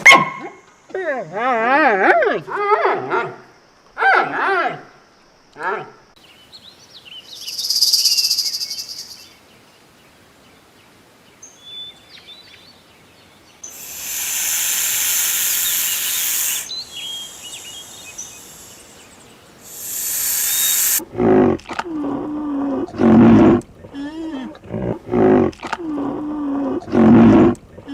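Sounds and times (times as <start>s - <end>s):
birds chirping: 11.4s - 21.0s
insects buzzing: 13.6s - 23.0s.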